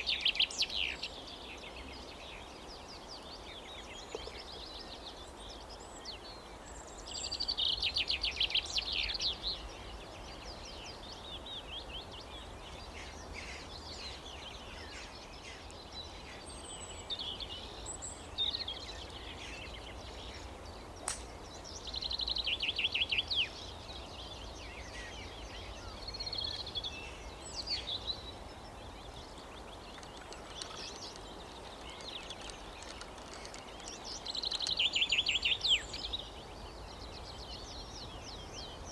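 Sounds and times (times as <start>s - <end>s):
birds singing: 0.0s - 38.9s
low outdoor background hum: 0.5s - 38.9s
sharp click: 21.0s - 21.3s.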